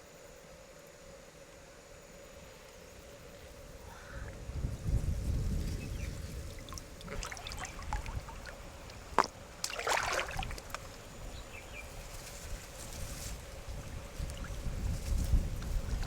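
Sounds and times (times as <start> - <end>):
river water splashing and trickling: 6.2 - 11.4, 14.1 - 16.0
short splash: 6.4 - 11.0
small drips and clicks: 6.5 - 11.0.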